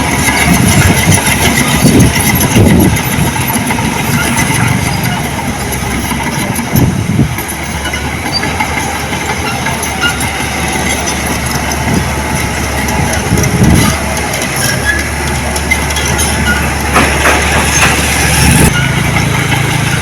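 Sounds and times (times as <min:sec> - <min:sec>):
diesel earthmoving machine running: 0:00.0 - 0:20.0
metal clanking and rattling: 0:00.0 - 0:20.0.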